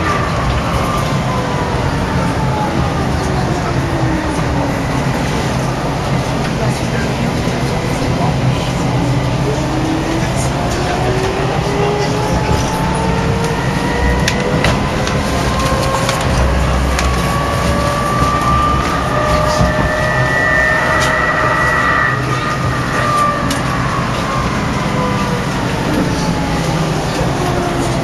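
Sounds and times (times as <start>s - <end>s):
streetcar rumble: 0.0s - 28.0s
whining tones: 9.1s - 28.0s.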